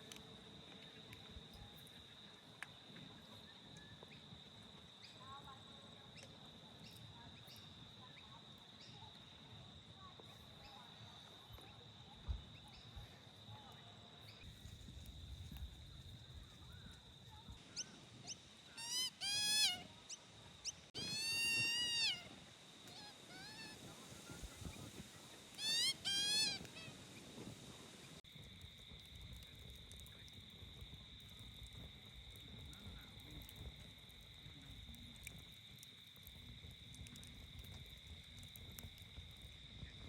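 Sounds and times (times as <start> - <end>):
animal calling: 18.7 - 19.9, 21.0 - 24.5, 25.6 - 27.1
high-pitched insect drone: 18.8 - 19.8, 21.0 - 22.3, 25.6 - 26.9.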